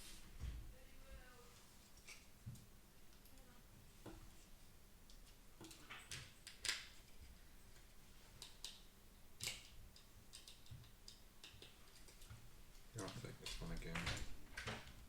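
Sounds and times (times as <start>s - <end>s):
small plastic parts clicking: 9.4s - 12.4s.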